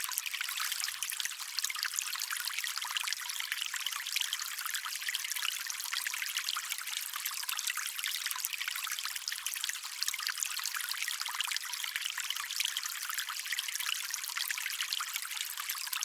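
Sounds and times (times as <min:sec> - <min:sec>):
stream water trickling: 0:00.0 - 0:16.0.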